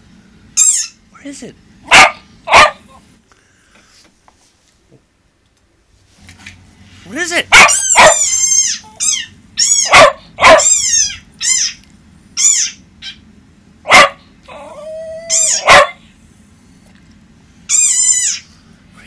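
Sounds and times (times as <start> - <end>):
small dog yipping: 0.6 - 1.0, 7.5 - 11.8, 12.4 - 13.2, 13.9 - 16.0, 17.7 - 18.5.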